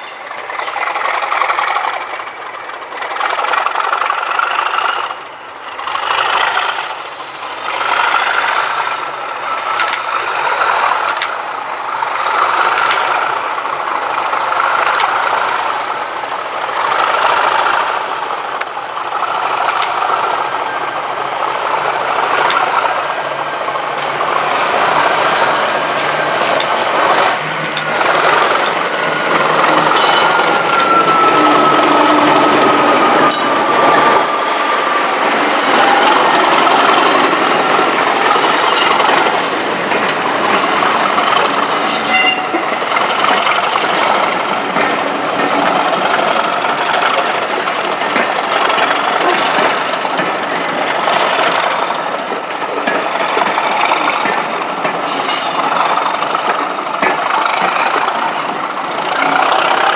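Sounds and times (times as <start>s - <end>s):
rail clicks: 0.0s - 59.9s
train wheels rolling on track: 0.0s - 59.9s.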